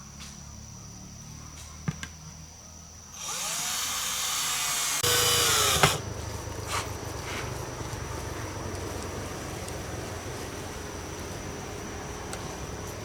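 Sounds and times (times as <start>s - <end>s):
power drill running: 3.1s - 6.2s.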